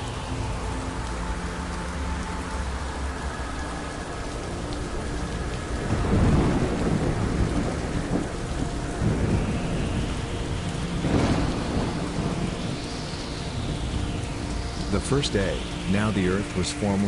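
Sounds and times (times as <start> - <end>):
heavy rain: 0.0 - 17.0
thunder rumbling: 4.0 - 17.0
sharp thunderclap: 5.9 - 8.3, 9.0 - 10.2, 11.0 - 12.7.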